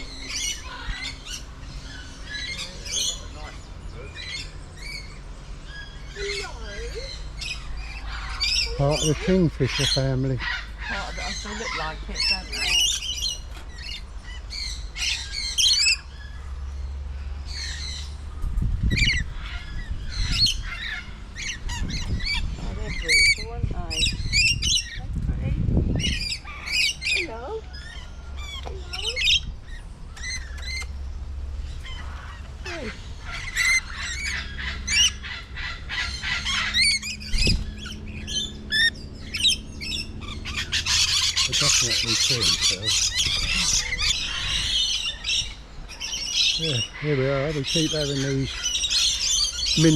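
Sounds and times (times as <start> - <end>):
kookaburras calling: 0.0 - 25.1, 25.9 - 49.9
birds squawking: 0.0 - 49.9
low rumble: 12.0 - 46.5.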